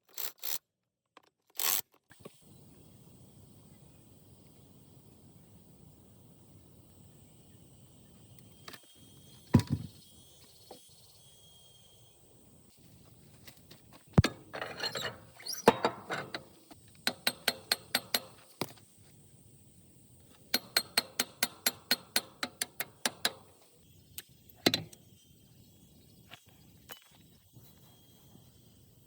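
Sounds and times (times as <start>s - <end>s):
quick even metal taps: 20.5s - 23.5s.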